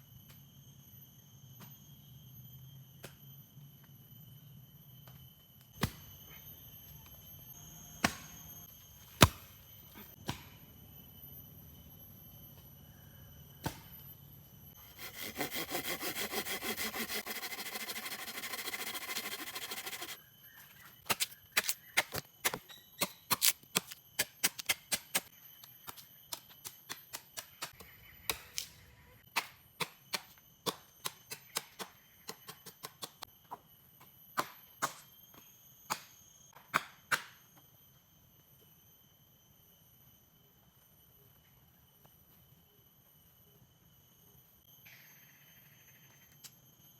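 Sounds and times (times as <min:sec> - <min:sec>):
insects droning: 0:00.0 - 0:46.9
hand saw rasping on wood: 0:14.9 - 0:20.2.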